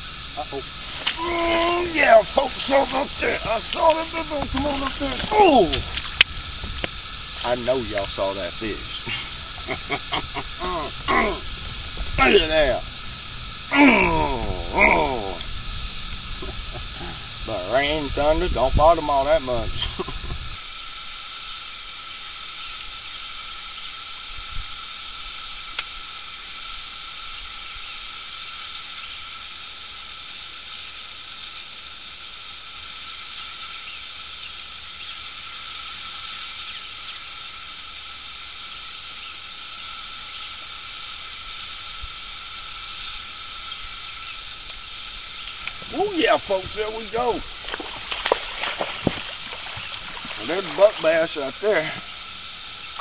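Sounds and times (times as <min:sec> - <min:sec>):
rain falling on lake: 0:00.0 - 0:17.2, 0:44.6 - 0:53.0.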